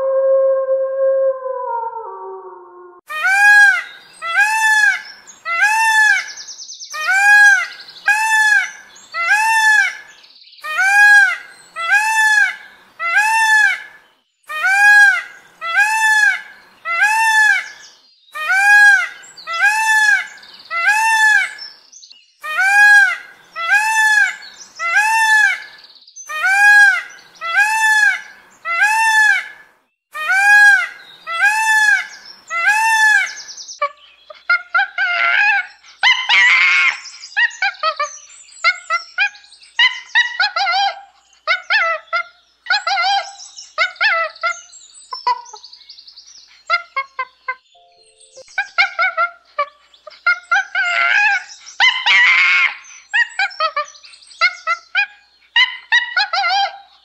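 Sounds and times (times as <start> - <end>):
peacock calling: 1.6 - 21.7, 22.4 - 45.6, 46.7 - 57.0.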